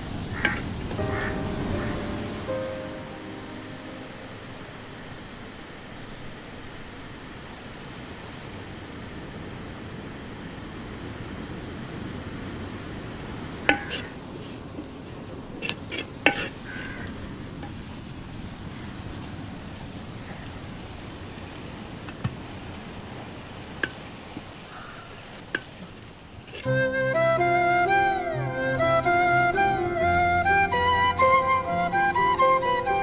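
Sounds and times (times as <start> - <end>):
food sizzling in oil: 0.0 - 10.9, 11.7 - 17.9.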